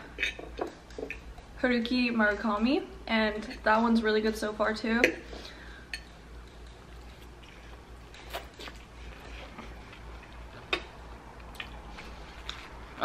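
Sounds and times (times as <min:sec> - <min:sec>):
chewing with wet mouth clicks: 0:06.0 - 0:12.6.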